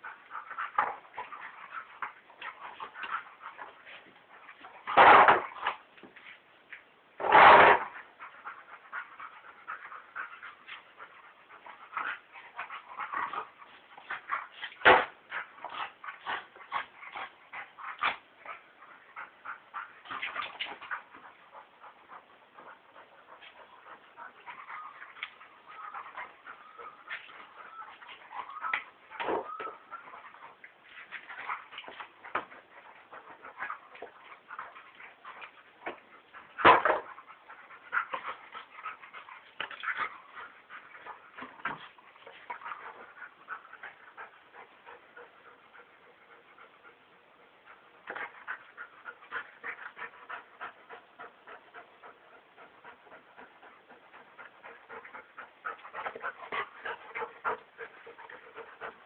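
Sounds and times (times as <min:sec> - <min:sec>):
dogs whimpering: 0:21.0 - 0:30.6.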